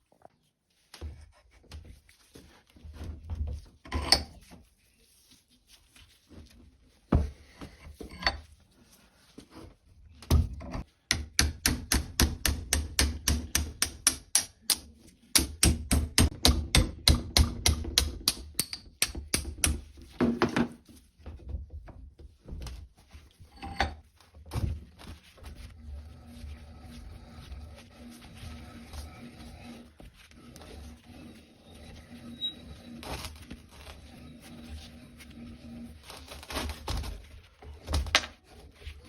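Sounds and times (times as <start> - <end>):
hammer striking metal: 11.1 - 14.8.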